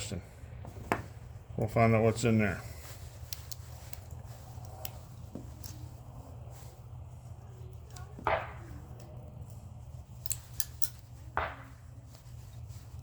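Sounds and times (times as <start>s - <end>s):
wire cutters snipping: 7.8s - 11.5s.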